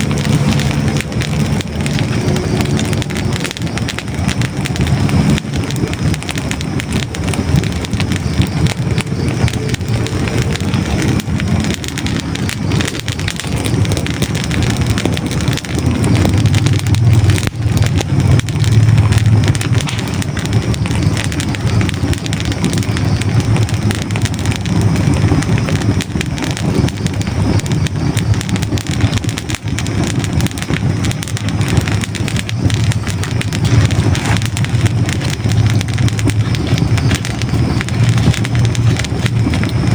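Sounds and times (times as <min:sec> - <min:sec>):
low rumble of flames: 0:00.0 - 0:39.9
wood crackling and popping: 0:00.0 - 0:39.9.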